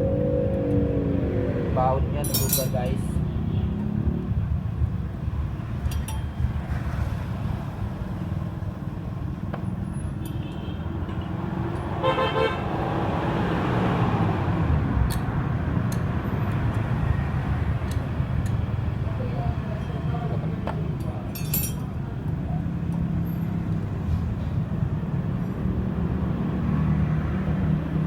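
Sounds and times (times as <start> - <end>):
vehicle passing close by: 0.0 - 4.7, 11.3 - 18.3, 23.1 - 28.0
road traffic: 0.0 - 28.0.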